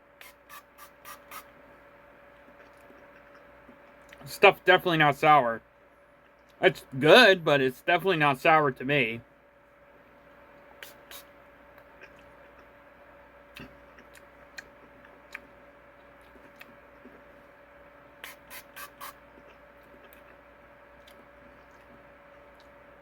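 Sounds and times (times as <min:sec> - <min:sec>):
faint hum: 0:00.0 - 0:23.0
spray bottle squirts: 0:00.2 - 0:01.5, 0:10.8 - 0:11.2, 0:18.2 - 0:19.2.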